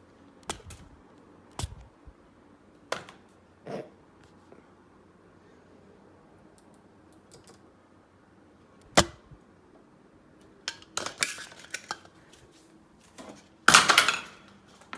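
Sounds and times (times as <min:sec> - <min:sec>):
fan clattering on hard surfaces: 0:13.1 - 0:14.9.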